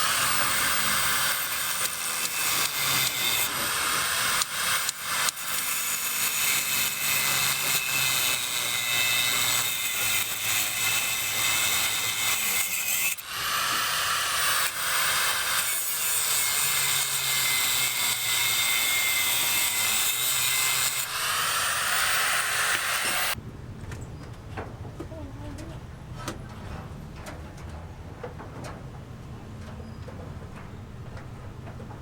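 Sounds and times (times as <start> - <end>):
power tool cutting with whine: 0.0 - 23.4.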